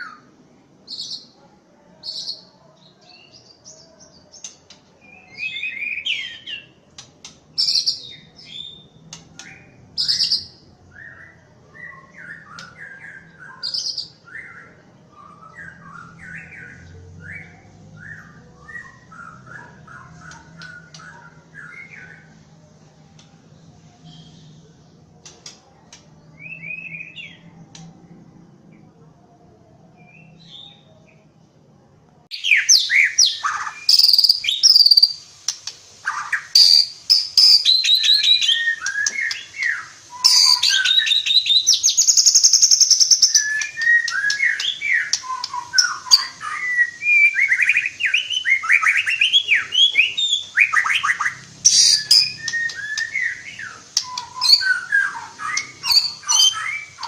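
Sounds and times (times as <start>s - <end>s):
songbird chirps: 0.0s - 57.0s
songbird whistled song with trills: 3.2s - 6.8s, 7.5s - 22.4s, 26.3s - 27.8s, 32.3s - 57.0s.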